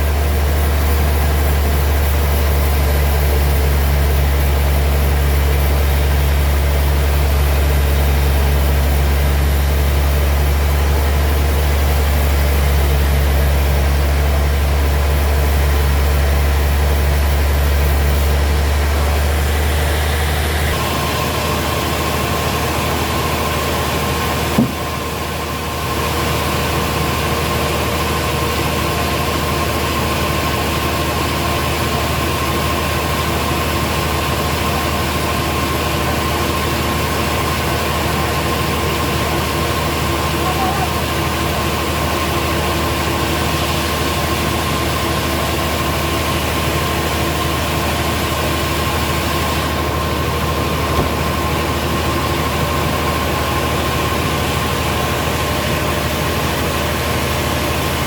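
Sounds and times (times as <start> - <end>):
machinery low drone: 0.0 - 58.0
sharp knock: 24.5 - 24.9.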